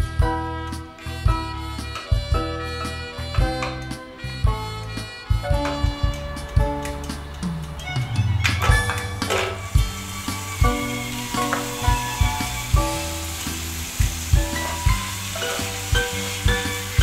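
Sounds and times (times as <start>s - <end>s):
background music with drum beat: 0.0s - 17.0s
ham sizzling in oil: 8.2s - 17.0s.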